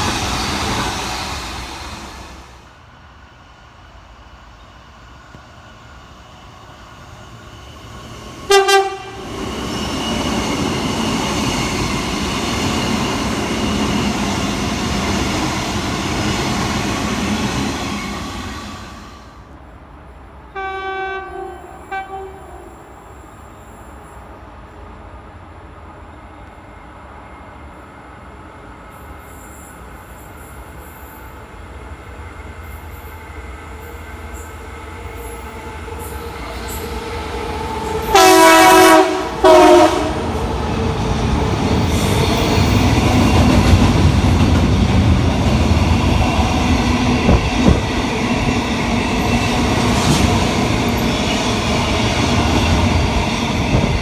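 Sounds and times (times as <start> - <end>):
train rumble and wheel clatter: 0.0 - 54.0
train horn blasts: 8.5 - 9.3, 20.5 - 22.8, 38.1 - 40.3.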